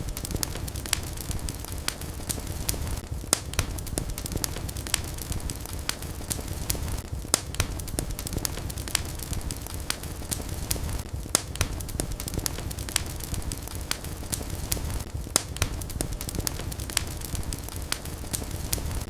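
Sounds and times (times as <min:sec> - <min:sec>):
fire popping and crackling: 0:00.0 - 0:19.0
low rumble of flames: 0:00.0 - 0:19.0.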